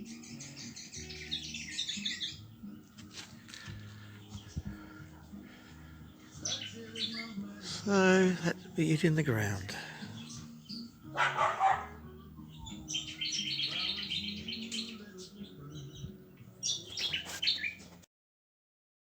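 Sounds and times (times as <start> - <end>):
birds chirping: 0.0 - 18.0
dog barking: 11.1 - 12.0.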